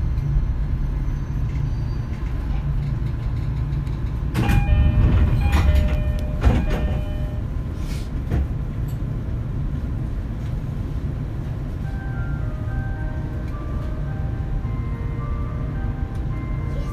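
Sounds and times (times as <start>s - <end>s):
train wheels rumbling on track: 0.0s - 16.5s
sharp clacks with ringing tones: 3.5s - 7.4s.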